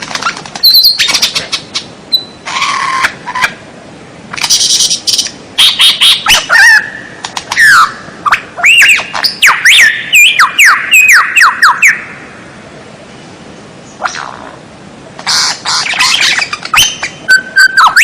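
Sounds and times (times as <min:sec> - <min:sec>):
faint hiss: 0:00.0 - 0:17.6
songbird whistling and squawking: 0:00.1 - 0:03.5, 0:04.4 - 0:12.2, 0:15.2 - 0:18.0.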